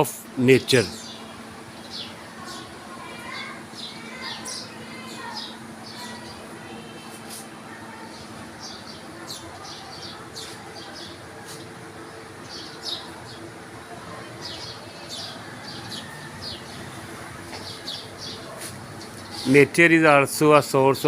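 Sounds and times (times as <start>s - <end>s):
small birds chirping: 0.3s - 21.0s.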